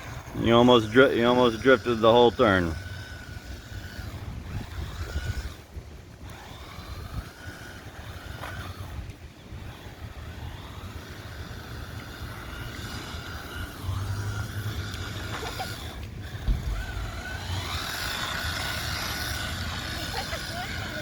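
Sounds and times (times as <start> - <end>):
electric motor whining: 0.0 - 21.0.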